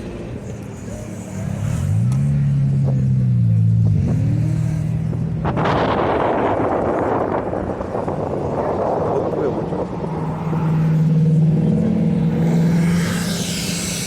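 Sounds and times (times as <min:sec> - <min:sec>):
car engine revving: 0:00.0 - 0:14.0
loud rushing noise: 0:05.4 - 0:14.0.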